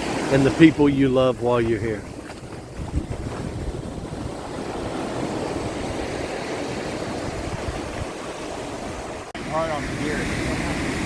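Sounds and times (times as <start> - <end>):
surf washing onto beach: 0.0 - 11.0
wind buffeting microphone: 0.0 - 11.0.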